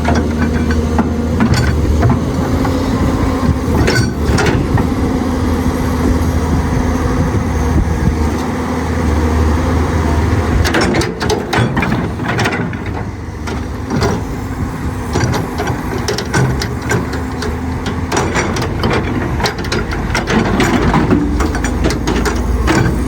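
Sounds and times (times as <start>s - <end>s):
sharp metallic clanks and knocks: 0.0s - 2.8s, 3.4s - 4.9s, 10.6s - 14.4s, 15.0s - 23.0s
excavator diesel engine running: 0.0s - 23.0s.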